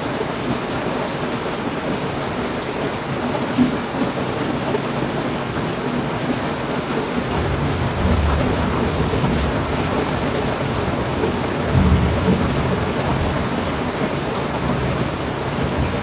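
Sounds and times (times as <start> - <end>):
heavy rain: 0.0 - 16.0
thunder rumble: 7.3 - 16.0.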